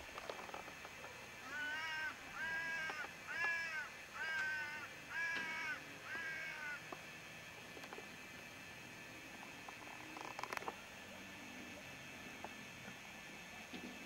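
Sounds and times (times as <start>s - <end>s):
bird calling: 1.4s - 7.0s.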